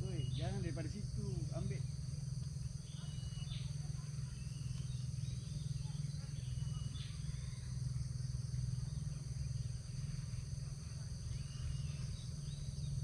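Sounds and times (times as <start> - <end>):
bird chirps: 0.0 - 0.9, 2.8 - 7.6
insects buzzing: 0.0 - 13.0
steady low hum: 0.0 - 13.0.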